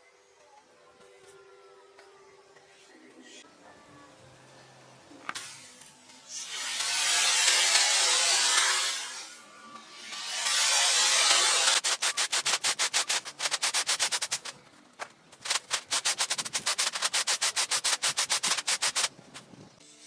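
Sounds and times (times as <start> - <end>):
fast rhythmic scraping strokes: 6.3 - 9.4, 10.0 - 19.6
steady hiss: 10.5 - 19.8.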